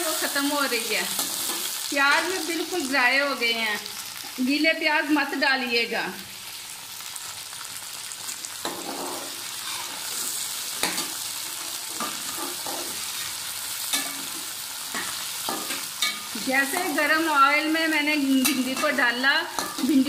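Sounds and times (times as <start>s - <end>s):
okra sizzling in hot oil: 0.0s - 20.0s
metal spatula scraping pot: 8.6s - 11.1s.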